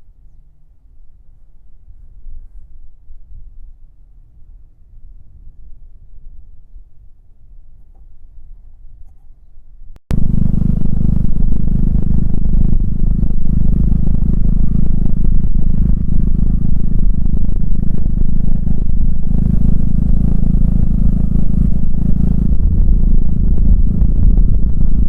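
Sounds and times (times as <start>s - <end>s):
muffler clatter: 10.1s - 25.0s
scooter engine running: 10.1s - 25.0s.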